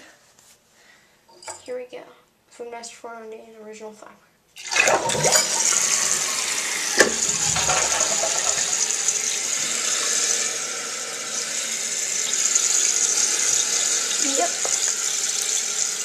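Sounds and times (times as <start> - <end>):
toilet flushing water rush: 4.6 - 16.0.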